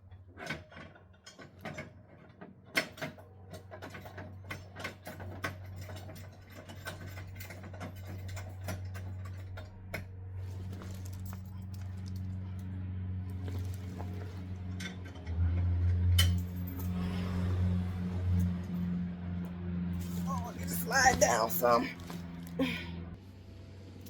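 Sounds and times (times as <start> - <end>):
steady low hum: 6.8 - 24.0.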